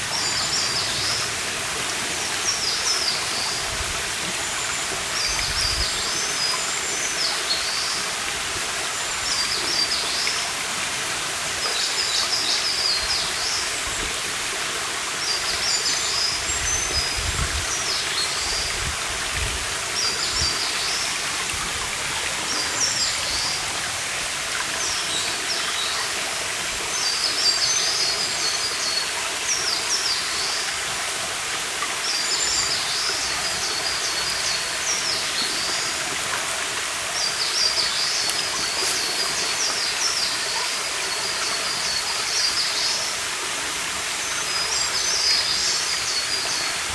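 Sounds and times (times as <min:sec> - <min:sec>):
stream running: 0:00.0 - 0:46.9
songbird singing: 0:37.1 - 0:43.0.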